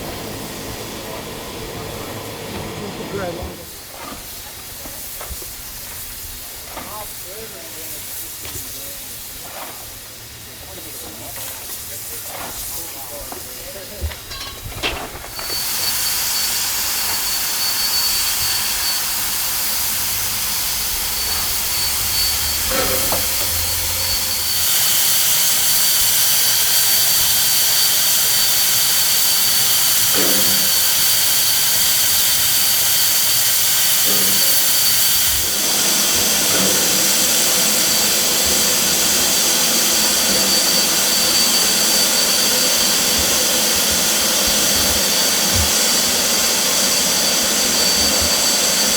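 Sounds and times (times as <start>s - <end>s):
steam locomotive venting steam: 0.0s - 48.9s
high whistling tone: 15.4s - 25.3s, 37.6s - 48.9s.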